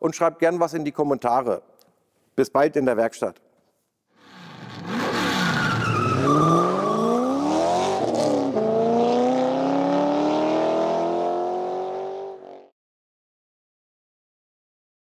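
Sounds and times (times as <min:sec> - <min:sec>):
car engine accelerating: 0:04.3 - 0:12.6.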